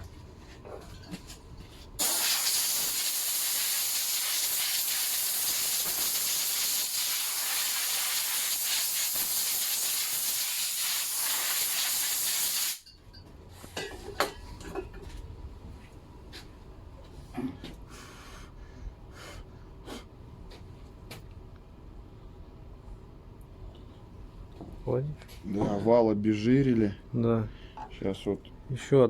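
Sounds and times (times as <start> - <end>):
aerosol spray hiss: 2.0 - 12.8.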